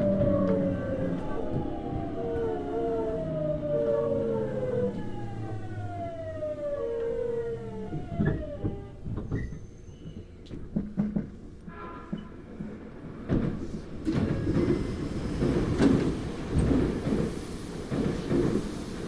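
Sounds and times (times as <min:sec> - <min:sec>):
electric train inverter whining: 0:00.0 - 0:09.6.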